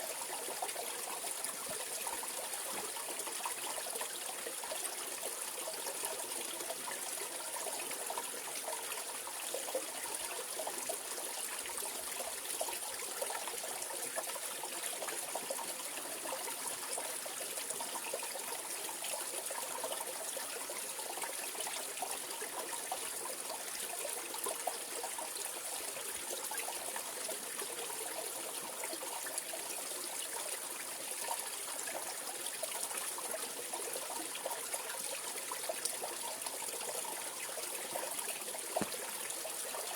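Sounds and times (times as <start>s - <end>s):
stream flowing over rocks: 20.8s - 39.9s.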